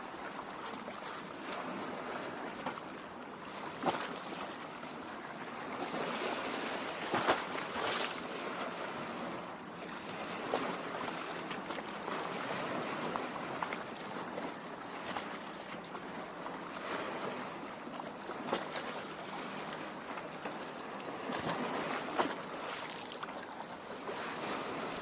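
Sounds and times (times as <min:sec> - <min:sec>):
lake water lapping: 0:00.0 - 0:25.0
water splashes: 0:16.8 - 0:25.0.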